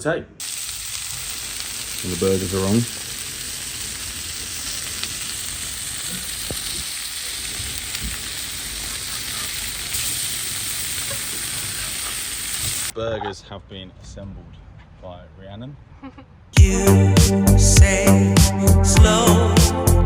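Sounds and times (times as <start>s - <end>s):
burger patties sizzling: 0.4s - 13.0s.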